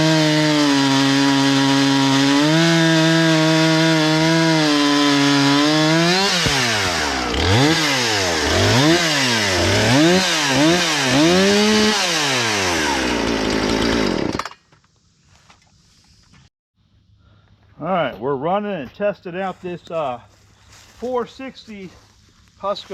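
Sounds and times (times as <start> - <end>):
chainsaw revving: 0.0 - 14.6.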